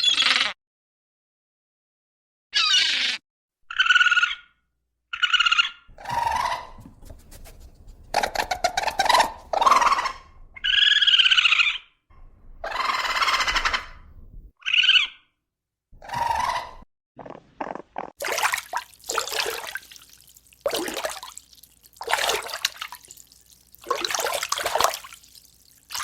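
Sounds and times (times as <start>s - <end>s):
animal calls and cries: 2.6s - 4.6s.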